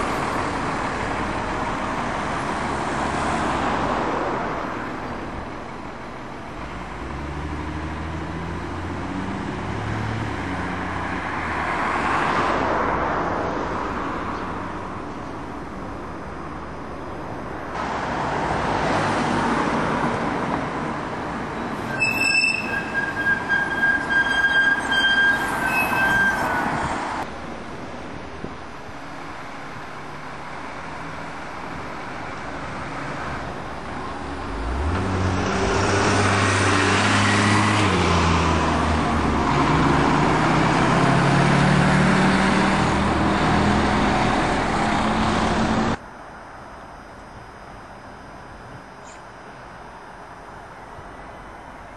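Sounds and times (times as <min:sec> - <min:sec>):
high metallic squeal: 0:21.7 - 0:27.0
diesel engine revving: 0:33.9 - 0:46.0.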